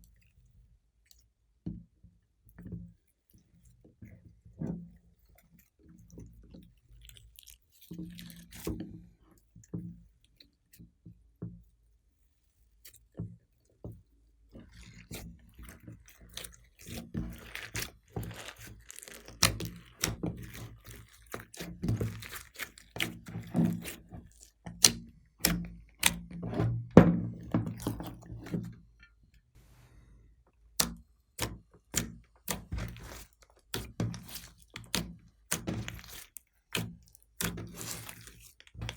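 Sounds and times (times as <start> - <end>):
hands squishing sticky slime: 7.1 - 8.7, 14.6 - 26.8, 27.4 - 28.7, 30.8 - 38.9.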